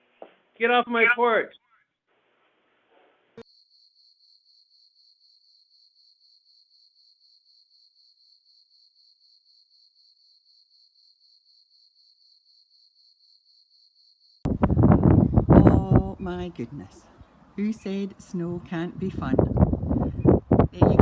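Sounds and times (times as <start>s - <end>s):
cricket chirping: 3.4s - 15.4s.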